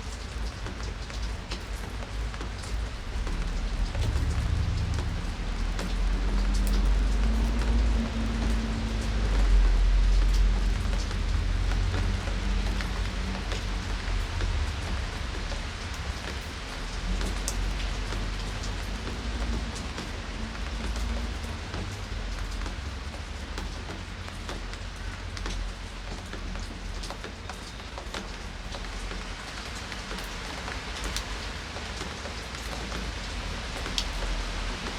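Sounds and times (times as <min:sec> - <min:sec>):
steady rain falling: 0:00.0 - 0:34.9
low rumble: 0:03.0 - 0:08.9.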